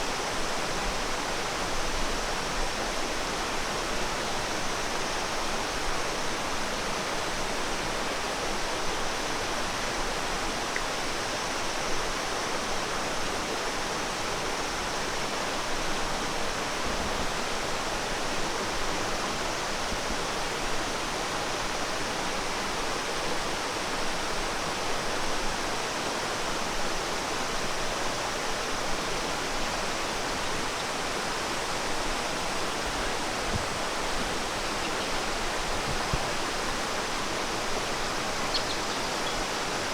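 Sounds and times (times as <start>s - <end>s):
flowing water rushing: 21.0s - 39.9s.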